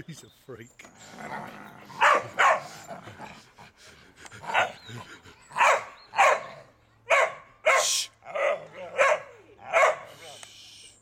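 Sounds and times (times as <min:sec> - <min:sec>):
dog barking: 0:02.0 - 0:02.7, 0:05.6 - 0:10.1.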